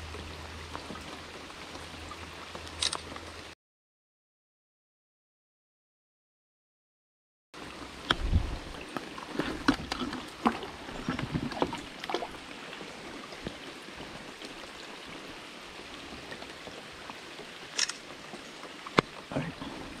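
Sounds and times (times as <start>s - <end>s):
faint water hiss: 7.6s - 20.0s.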